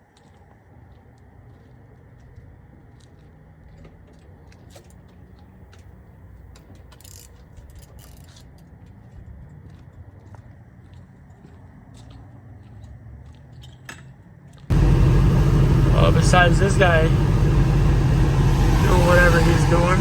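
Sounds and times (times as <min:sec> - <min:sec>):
truck engine and road drone: 0:14.7 - 0:20.0.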